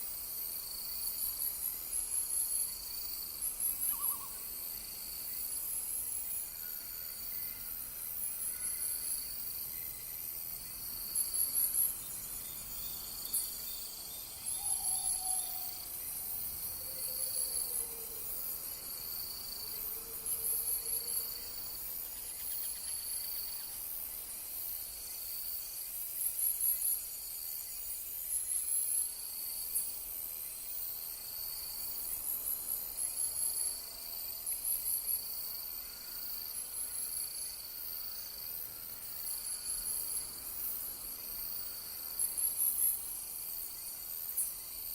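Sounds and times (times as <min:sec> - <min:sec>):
high pulsed insect chirps: 0:00.0 - 0:44.9
lower insect chirping: 0:00.0 - 0:44.9.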